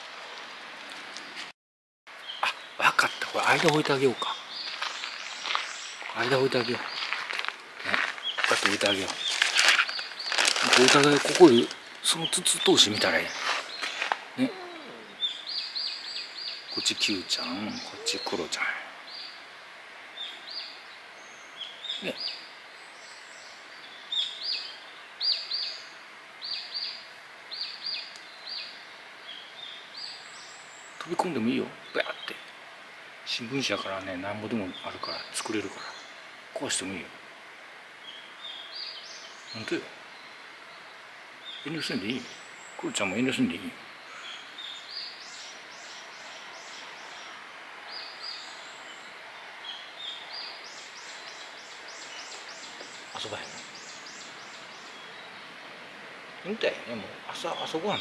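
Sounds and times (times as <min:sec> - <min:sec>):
steady outdoor hiss: 0:00.0 - 0:01.5, 0:02.1 - 0:58.0
songbird singing: 0:02.1 - 0:58.0
small bird calling: 0:02.2 - 0:19.4, 0:38.0 - 0:55.6.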